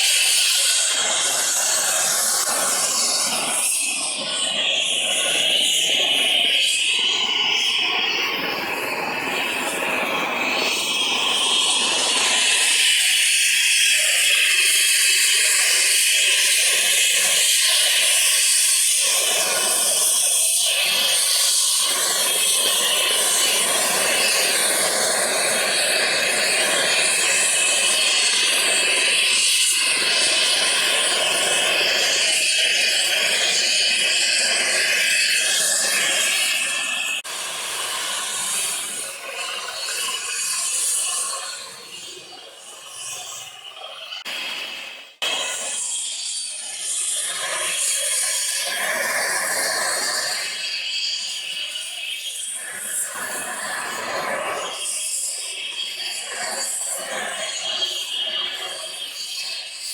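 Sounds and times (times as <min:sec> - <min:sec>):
rotor wash hiss: 0:00.0 - 0:42.0, 0:44.3 - 0:59.9
helicopter turbine whine: 0:00.0 - 0:43.3.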